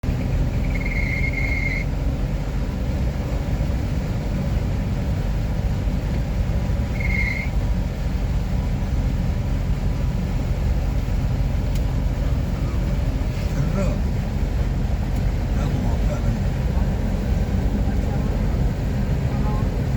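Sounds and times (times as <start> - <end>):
low rumble of road traffic: 0.0 - 19.9
high-pitched squeal: 0.5 - 1.9, 6.8 - 7.6.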